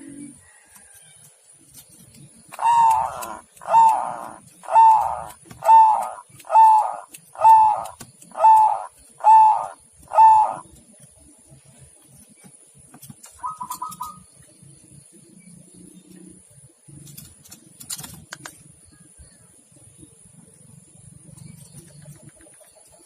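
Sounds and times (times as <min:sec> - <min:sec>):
dove calling: 0:01.7 - 0:19.4.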